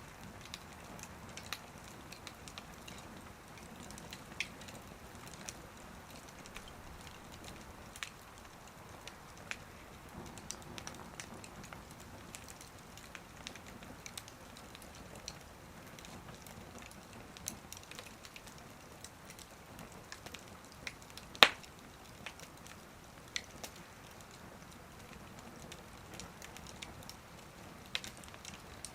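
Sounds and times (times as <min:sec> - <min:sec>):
wood fire crackling: 0:00.0 - 0:28.9
loud pop from fire: 0:21.4 - 0:21.7.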